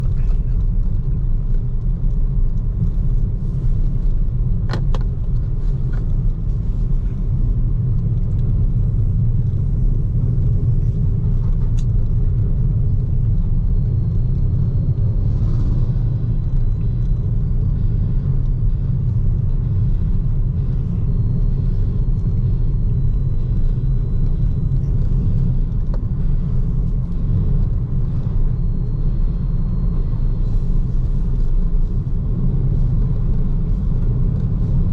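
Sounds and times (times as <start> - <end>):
tyre and road noise: 0.0 - 34.9.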